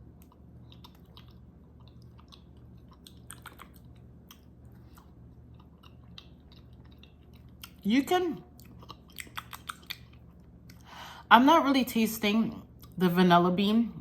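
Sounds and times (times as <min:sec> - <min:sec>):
chewing with wet mouth clicks: 0:00.2 - 0:07.9, 0:08.5 - 0:10.9.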